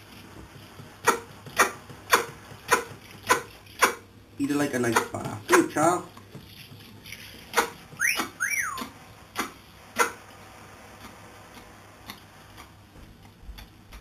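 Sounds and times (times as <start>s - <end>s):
parrot whistled calls: 8.0s - 8.9s.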